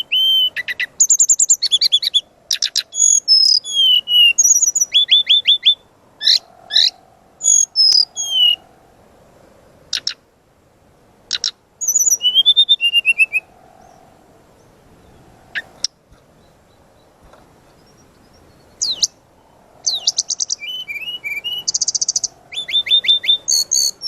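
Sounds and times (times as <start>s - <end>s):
bird chirps whistles and trills: 0.0s - 8.6s, 9.9s - 10.2s, 11.3s - 14.0s, 17.7s - 19.2s, 19.8s - 24.0s.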